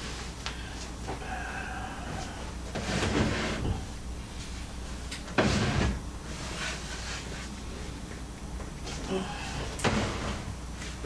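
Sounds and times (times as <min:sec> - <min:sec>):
speaker cabinet scraping: 0:02.2 - 0:03.9, 0:05.3 - 0:07.5, 0:09.8 - 0:11.0.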